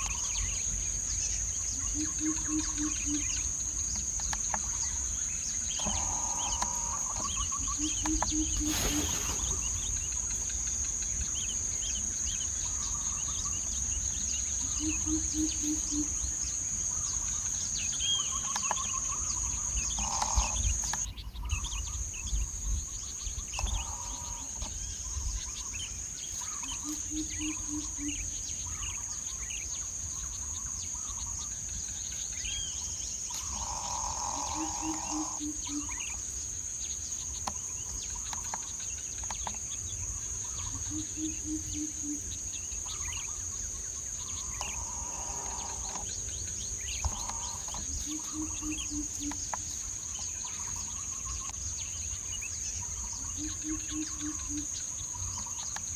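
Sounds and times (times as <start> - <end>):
bird chirps and calls: 0.0 - 36.3, 37.2 - 55.9
insects droning: 0.0 - 55.9
low hoots: 33.5 - 35.9.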